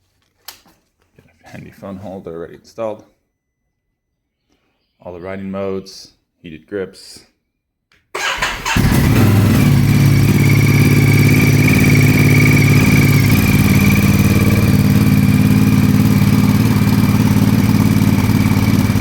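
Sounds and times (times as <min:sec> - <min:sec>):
motorcycle engine idling: 0:08.2 - 0:19.0.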